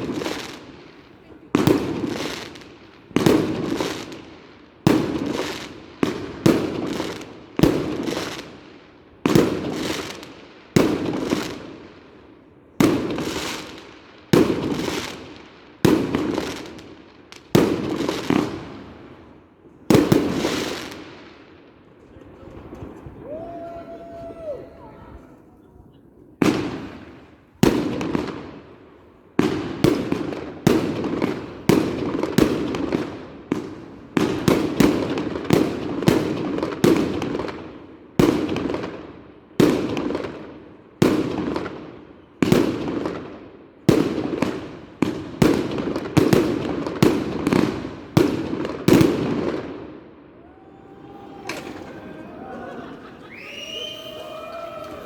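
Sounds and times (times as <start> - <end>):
fireworks bangs: 0.0 - 11.9, 12.8 - 25.4, 26.3 - 28.8, 43.9 - 55.0.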